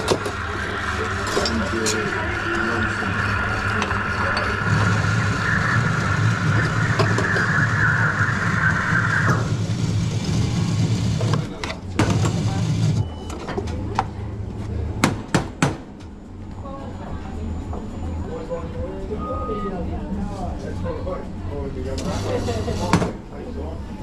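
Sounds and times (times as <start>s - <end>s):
low hum: 0.0s - 11.2s
espresso machine hiss: 0.1s - 10.5s.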